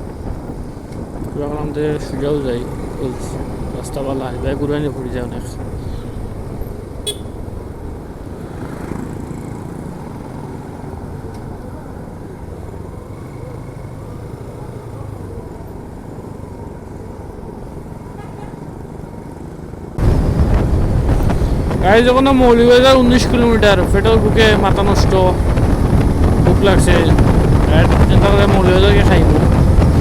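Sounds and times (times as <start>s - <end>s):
wind rushing over microphone: 0.0s - 11.2s, 20.0s - 30.0s
motorcycle engine running: 6.1s - 10.7s.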